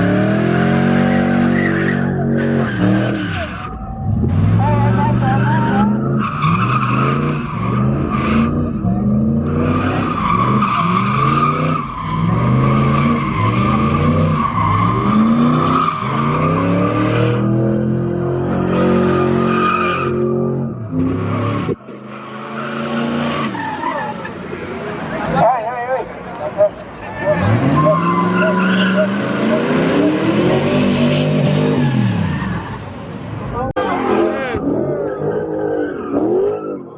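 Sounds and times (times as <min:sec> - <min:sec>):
car engine revving: 0:00.0 - 0:36.9
tyres squealing: 0:22.5 - 0:25.6, 0:26.3 - 0:32.8.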